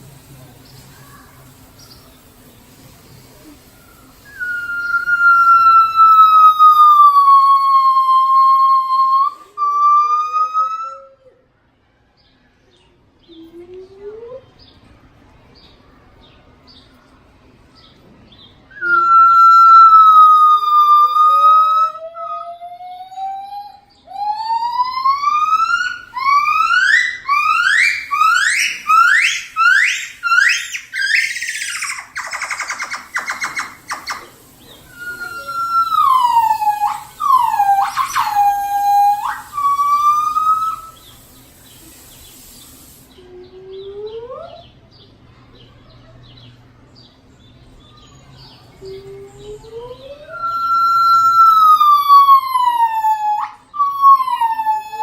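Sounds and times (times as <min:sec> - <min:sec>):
gibbon whooping: 0:04.2 - 0:11.4, 0:18.7 - 0:41.2, 0:48.8 - 0:55.0.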